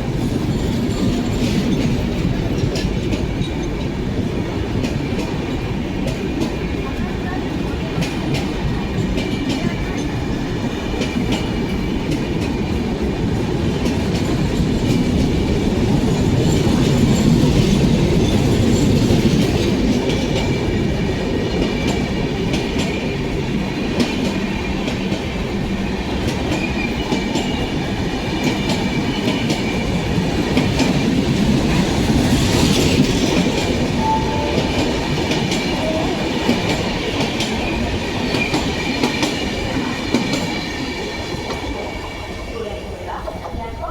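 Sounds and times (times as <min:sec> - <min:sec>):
train coaches rumbling past: 0:00.0 - 0:43.9.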